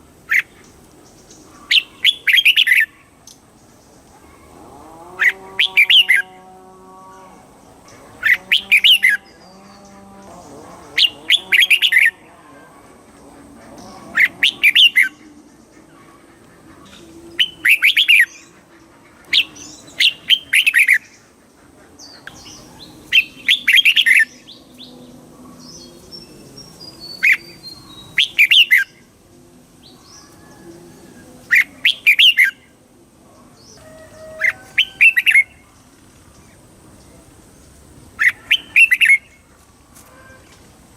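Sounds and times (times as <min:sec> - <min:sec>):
quieter bird calls: 0:00.0 - 0:29.2, 0:29.8 - 0:40.8
bulbul singing: 0:05.2 - 0:12.6, 0:13.4 - 0:21.3, 0:22.0 - 0:29.2, 0:29.8 - 0:32.8, 0:33.6 - 0:35.9, 0:37.0 - 0:39.4.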